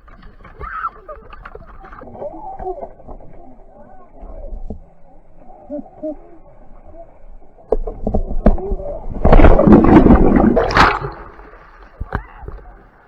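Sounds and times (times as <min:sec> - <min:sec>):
water splashing: 0:08.8 - 0:13.0.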